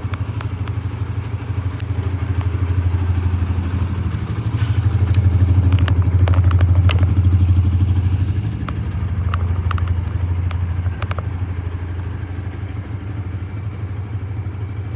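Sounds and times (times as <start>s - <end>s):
motorcycle engine idling: 0.0s - 14.9s
light clicks: 3.4s - 7.1s.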